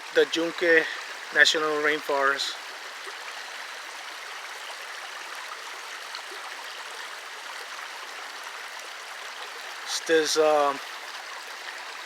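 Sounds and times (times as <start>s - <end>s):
river flowing over rocks: 0.0s - 12.0s.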